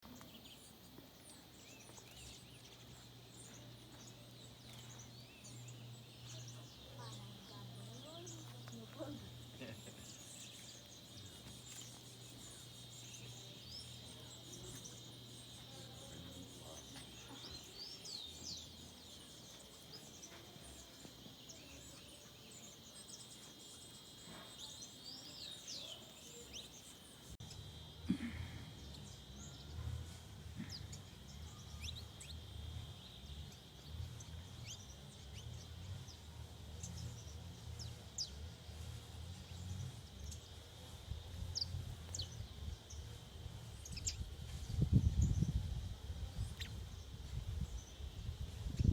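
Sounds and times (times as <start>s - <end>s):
bird chirps and calls: 0.1s - 27.4s
insect drone: 0.2s - 48.9s.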